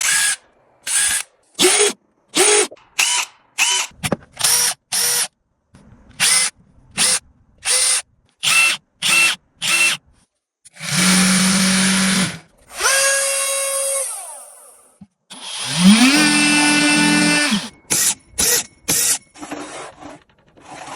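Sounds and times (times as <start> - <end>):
power tool whining: 10.7 - 19.2
power tool humming: 15.3 - 17.7.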